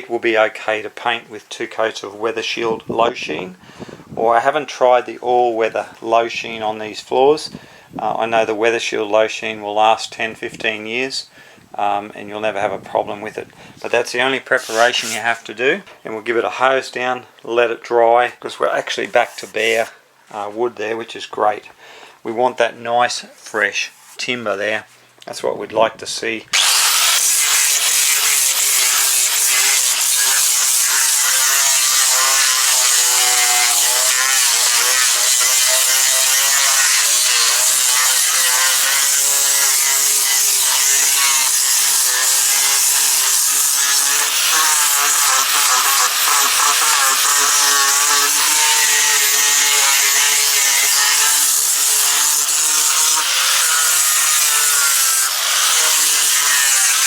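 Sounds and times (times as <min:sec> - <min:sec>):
angle grinder sanding wood: 0:14.4 - 0:15.4, 0:26.5 - 0:57.0.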